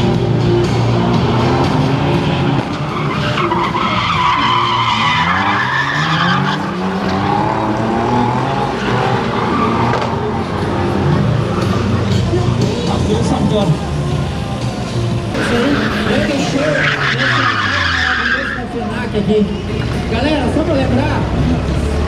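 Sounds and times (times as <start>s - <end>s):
car engine revving: 0.0s - 22.0s
tyres squealing: 2.4s - 10.3s, 15.3s - 18.9s.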